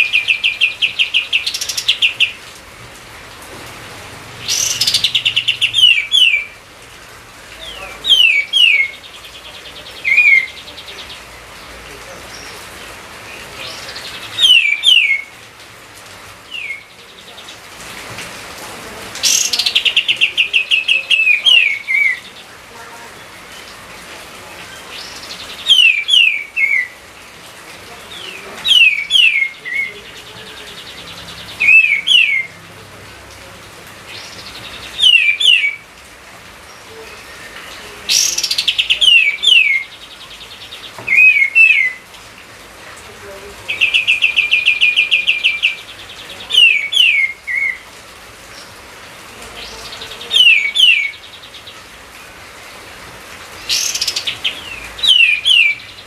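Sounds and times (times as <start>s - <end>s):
songbird whistling: 14.4s - 15.3s, 35.0s - 35.8s, 41.1s - 42.0s, 53.7s - 55.9s.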